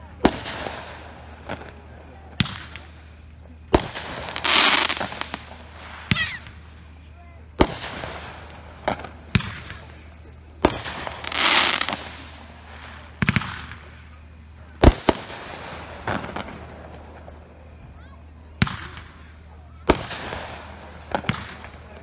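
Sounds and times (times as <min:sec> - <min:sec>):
fireworks bangs: 0:00.0 - 0:22.0
fireworks hissing burst: 0:03.7 - 0:07.0, 0:07.6 - 0:14.1.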